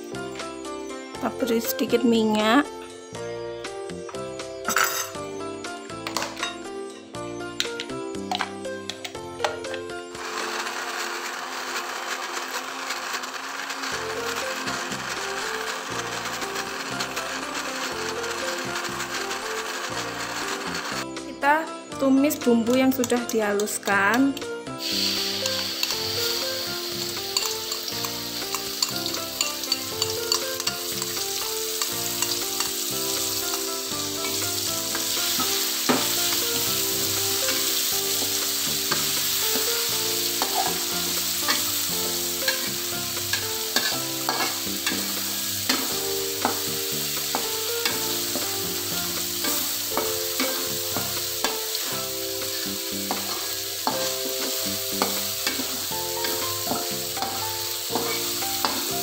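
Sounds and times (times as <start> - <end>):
paste sizzling in hot oil: 10.2 - 21.0, 24.7 - 59.0
metal spatula scraping a pan: 24.8 - 59.0.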